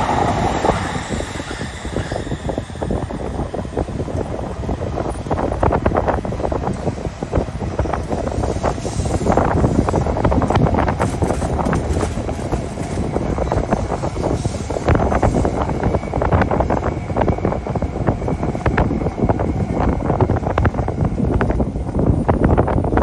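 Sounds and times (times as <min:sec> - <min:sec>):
train rumbling past: 0:00.0 - 0:23.0
wheels clacking on rails: 0:00.0 - 0:23.0
wind buffeting microphone: 0:00.0 - 0:23.0.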